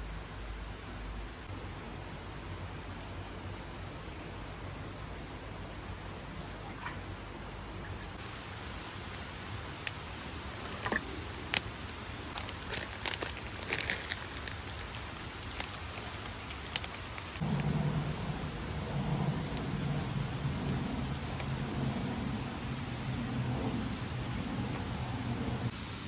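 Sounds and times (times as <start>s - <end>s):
wood fire crackling: 8.2s - 25.7s
low hum: 13.5s - 26.0s.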